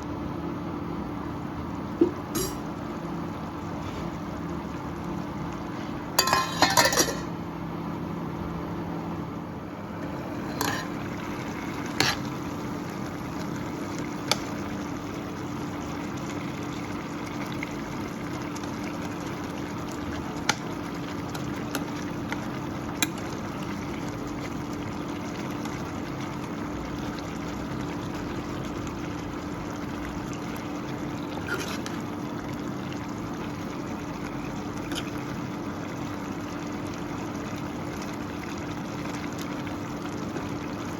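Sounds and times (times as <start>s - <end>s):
food sizzling in a pan: 10.1s - 40.9s.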